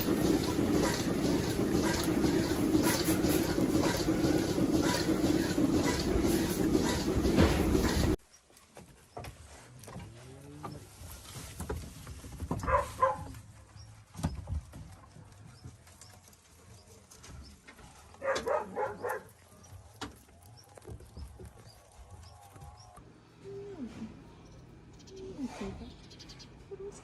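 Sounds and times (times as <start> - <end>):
pulsing animal calls: 0.0 - 8.2.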